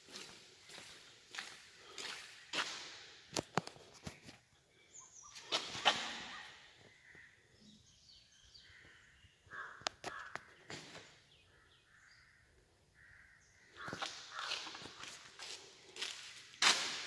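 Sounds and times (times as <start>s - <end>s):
birds chirping: 0.0s - 3.2s, 3.8s - 16.6s
harsh bird calls: 4.0s - 15.7s.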